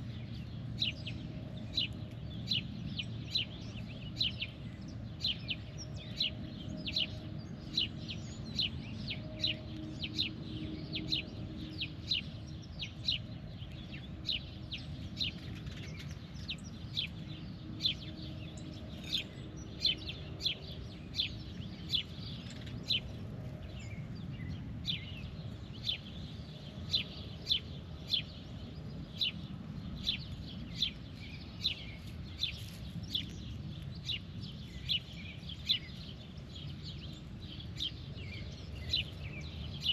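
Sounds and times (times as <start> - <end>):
bird chirping: 0.0 - 39.9
low background rumble: 0.0 - 39.9.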